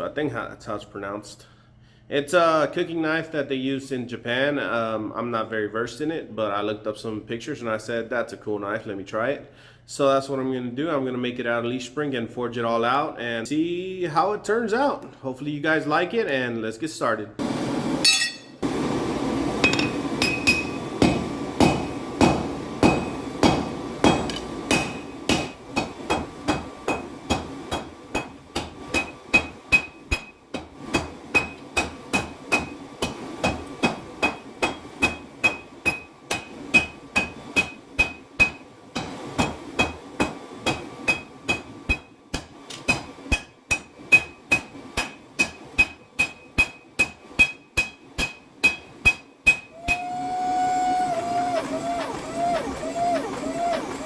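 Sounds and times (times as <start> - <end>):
hammer striking steel on anvil: 18.0 - 18.6, 19.6 - 50.1.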